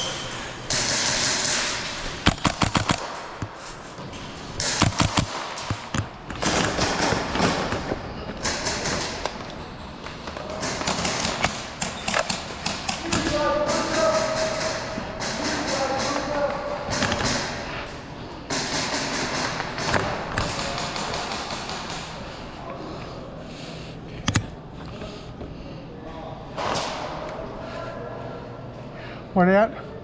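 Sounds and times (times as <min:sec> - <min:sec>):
airsoft guns firing: 0:00.7 - 0:03.4, 0:04.6 - 0:09.4, 0:10.4 - 0:17.6, 0:18.5 - 0:22.2.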